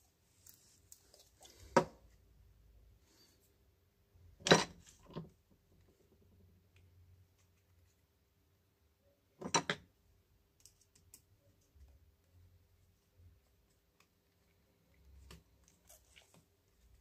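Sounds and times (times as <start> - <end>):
small parts and tools clicking: 10.5 - 11.9.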